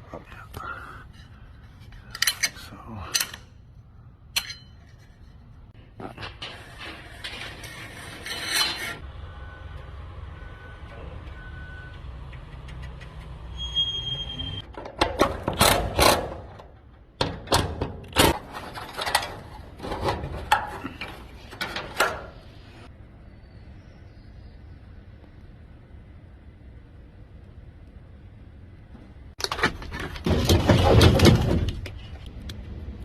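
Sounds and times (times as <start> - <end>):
tools scraping and knocking metal: 1.2 - 3.6, 4.3 - 9.0, 14.5 - 22.9.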